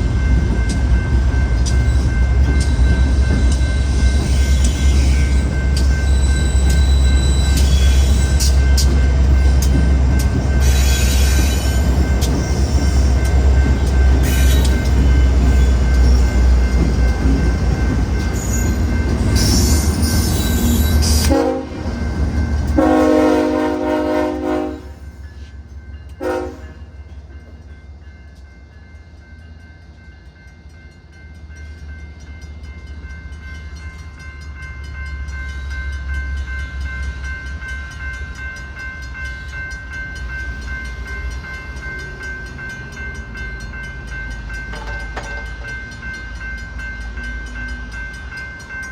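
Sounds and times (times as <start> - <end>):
diesel locomotive rumble: 0.0 - 28.9
crossing bell ringing: 0.0 - 48.9
locomotive air horn: 21.2 - 21.8, 22.8 - 25.0, 26.2 - 26.8.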